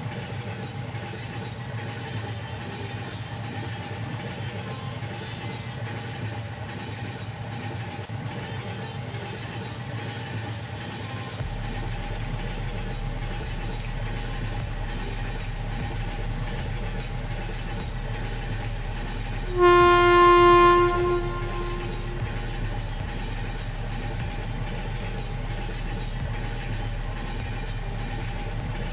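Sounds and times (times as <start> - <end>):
rail vehicle rumbling: 11.4 - 28.9
train horn: 19.4 - 23.6.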